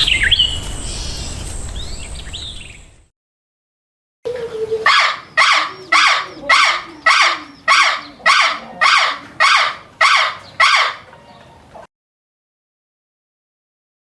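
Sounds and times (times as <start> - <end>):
bird giving harsh calls: 4.8 - 11.1.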